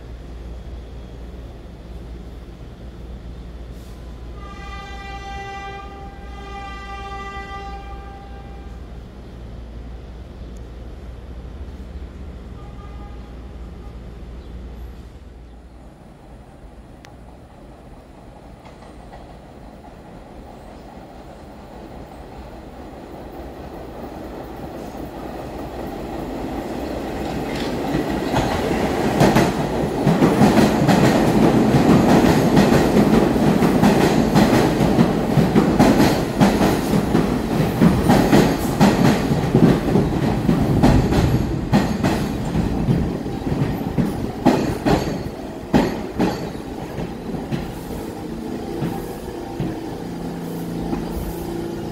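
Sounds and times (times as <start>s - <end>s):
subway train wheels rumbling: 0.0s - 51.9s
wheels clacking over rail joints: 26.1s - 47.9s.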